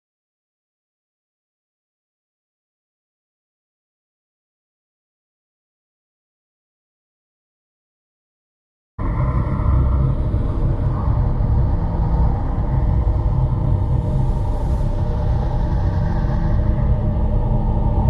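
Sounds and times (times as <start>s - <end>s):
constant hum: 9.0s - 18.0s
loud low rumble: 9.0s - 18.0s.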